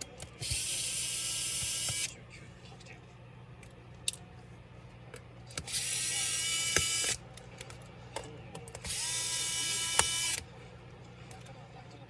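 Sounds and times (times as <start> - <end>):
screwdriver clicks: 0.0 - 2.1, 5.5 - 10.5
electric screwdriver motor whine: 0.2 - 2.1, 5.5 - 7.2, 8.8 - 10.5.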